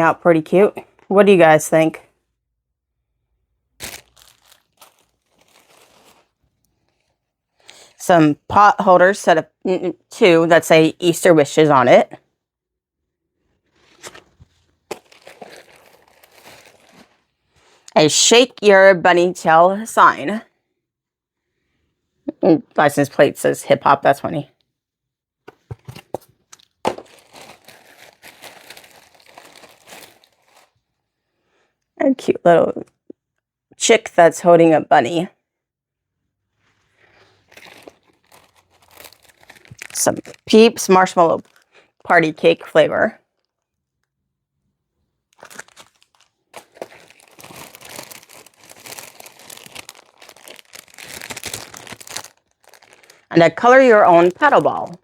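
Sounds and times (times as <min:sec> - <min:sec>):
plastic packaging crinkling: 0:03.8 - 0:07.1, 0:13.7 - 0:17.8, 0:25.6 - 0:30.8, 0:37.0 - 0:42.0, 0:45.3 - 0:55.0.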